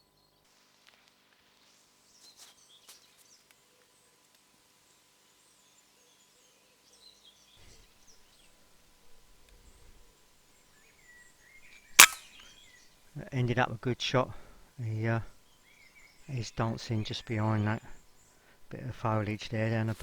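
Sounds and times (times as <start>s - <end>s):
small birds chirping: 4.8s - 20.0s.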